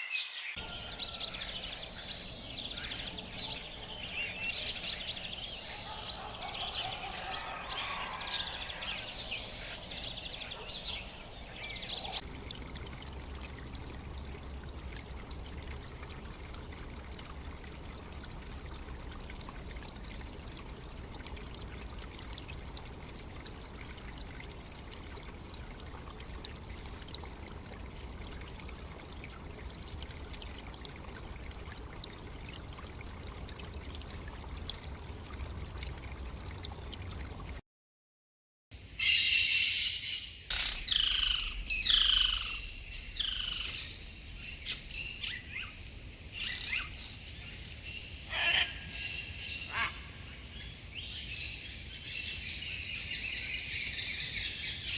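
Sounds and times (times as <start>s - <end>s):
birds chirping: 0.4s - 37.6s
running water: 0.5s - 37.6s.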